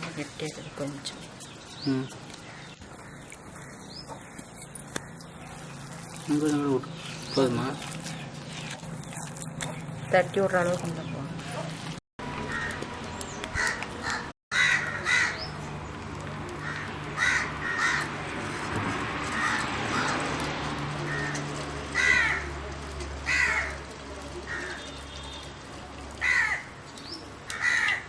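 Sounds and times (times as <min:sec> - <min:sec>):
crows cawing: 0:12.5 - 0:12.8, 0:13.6 - 0:15.5, 0:16.6 - 0:18.2, 0:19.3 - 0:20.3, 0:21.0 - 0:22.5, 0:23.2 - 0:23.8, 0:26.2 - 0:26.8, 0:27.5 - 0:28.0.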